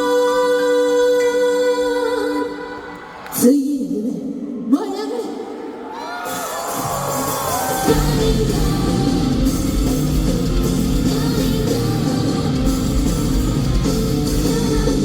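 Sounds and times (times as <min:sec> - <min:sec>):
person singing: 0:06.3 - 0:15.0
live rock band playing: 0:06.5 - 0:15.0.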